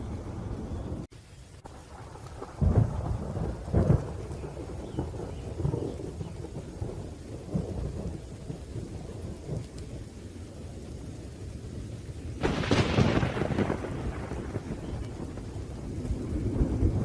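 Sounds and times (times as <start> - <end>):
rain: 0.0 - 17.0
rolling thunder: 0.0 - 17.0
loud thunderclap: 1.6 - 9.9, 12.4 - 17.0.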